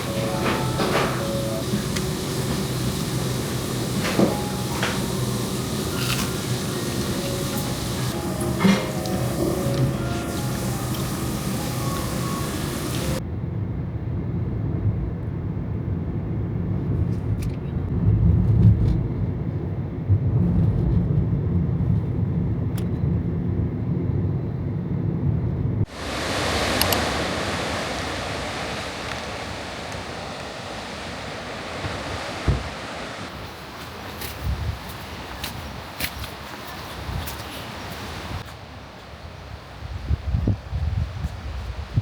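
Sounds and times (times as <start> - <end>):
low uneven rumble: 0.0 - 13.2
surf washing against rocks: 0.0 - 13.2, 25.9 - 38.8.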